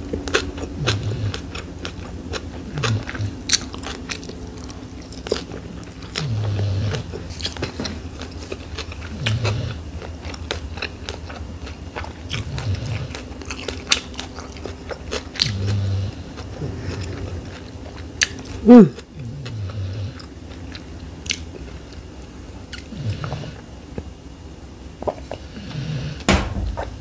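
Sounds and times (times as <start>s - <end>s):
chewing with wet mouth clicks: 0.0s - 24.1s
short low hum: 15.5s - 19.9s.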